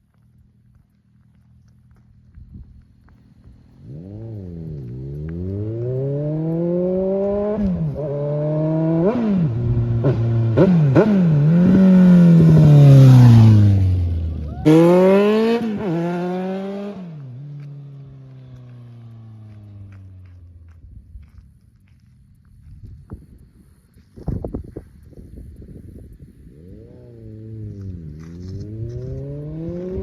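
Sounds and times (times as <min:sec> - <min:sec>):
motorcycle engine accelerating: 0:00.1 - 0:21.4, 0:24.3 - 0:30.0
engine revving: 0:03.8 - 0:20.0, 0:26.4 - 0:30.0.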